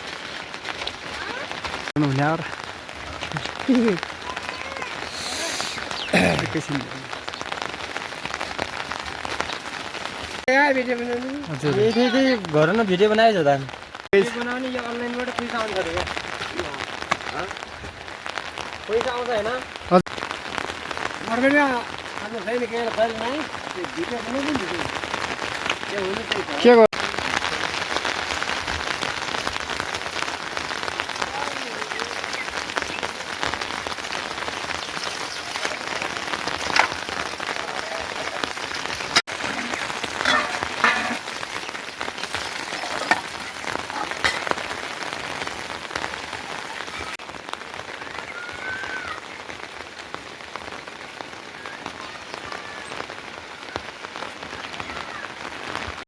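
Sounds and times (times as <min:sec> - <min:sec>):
sharp rain taps: 0:00.0 - 0:56.0
steady rain falling: 0:00.0 - 0:56.0.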